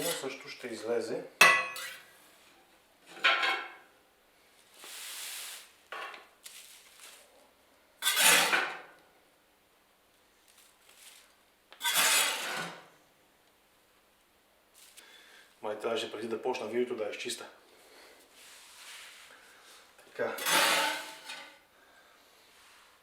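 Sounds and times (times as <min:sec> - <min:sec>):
metal tool scraping inside stove: 0:08.0 - 0:08.7, 0:11.8 - 0:12.8, 0:20.4 - 0:21.6.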